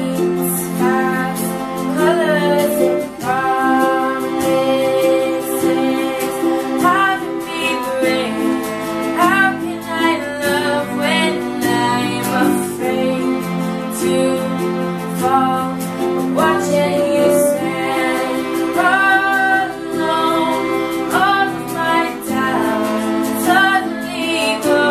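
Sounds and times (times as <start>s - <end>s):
woman singing a slow ballad: 0.0s - 8.6s, 9.2s - 14.6s, 16.4s - 24.9s
sustained instrumental accompaniment: 0.0s - 24.9s.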